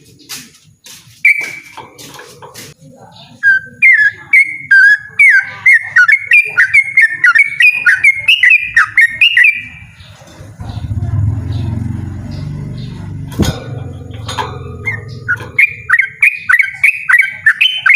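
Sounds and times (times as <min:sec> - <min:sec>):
bird singing bubbly whistled notes: 0:01.2 - 0:01.8, 0:03.2 - 0:10.0, 0:14.7 - 0:17.9.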